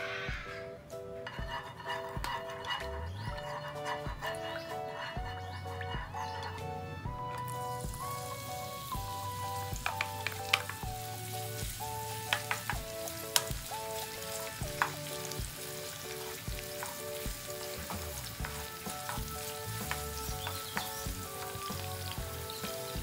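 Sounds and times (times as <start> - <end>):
background music with soft beat: 0.0 - 23.0
onion sizzling in hot oil: 1.2 - 23.0
wooden spoon clicking on pan: 9.8 - 10.9, 12.3 - 13.5, 19.8 - 21.0.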